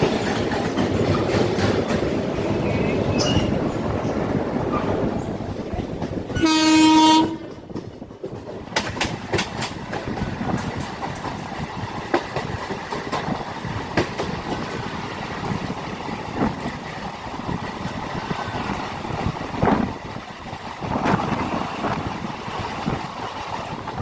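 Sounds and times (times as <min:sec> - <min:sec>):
train rumble: 0:00.0 - 0:24.0
train wheels clacking on rail joints: 0:00.0 - 0:24.0
train horn: 0:06.3 - 0:07.6.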